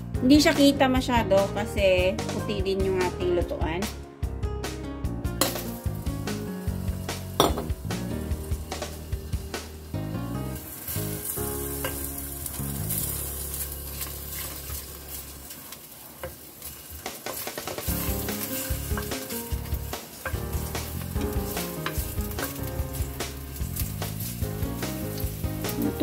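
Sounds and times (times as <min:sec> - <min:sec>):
background music: 0:00.0 - 0:15.5, 0:17.7 - 0:26.0
ginger sizzling in hot oil: 0:05.4 - 0:26.0.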